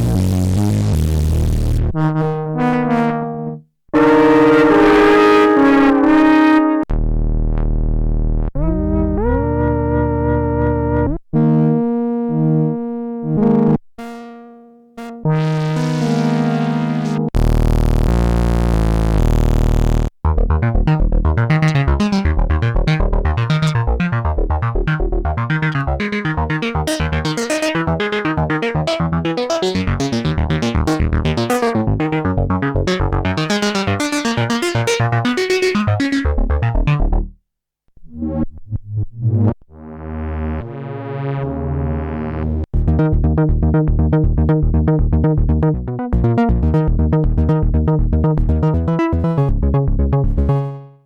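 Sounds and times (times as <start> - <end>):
synthesizer sustained bass patch: 0.0 - 11.2, 15.0 - 37.4, 39.8 - 50.9
synthesizer plucked note sequence: 0.0 - 37.4, 39.2 - 51.0
synthesizer sustained chord: 23.4 - 37.3.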